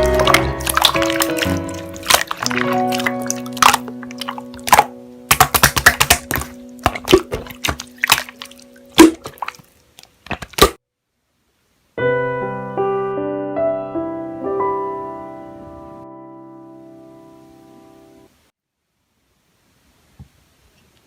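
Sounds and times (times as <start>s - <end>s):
soft piano music: 0.0s - 5.3s, 6.2s - 9.0s, 12.0s - 18.3s
slime squishing by hand: 0.0s - 10.8s.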